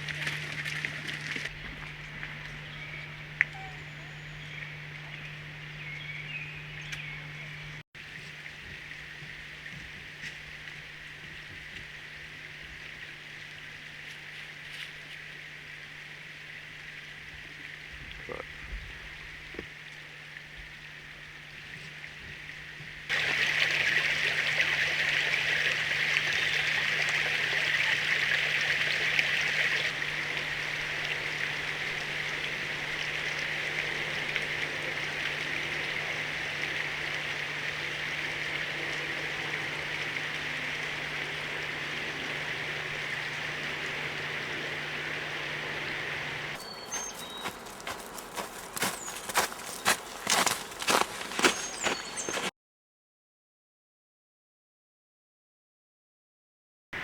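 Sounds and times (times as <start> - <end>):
stream water rushing: 0.0 - 6.3, 23.1 - 52.5
faint low hum: 0.0 - 11.6.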